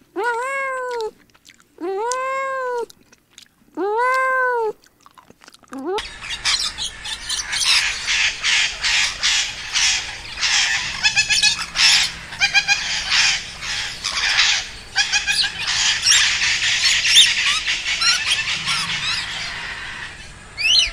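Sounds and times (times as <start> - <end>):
budgerigars chattering: 6.0 - 20.9
quick ticking bird notes: 6.0 - 20.9.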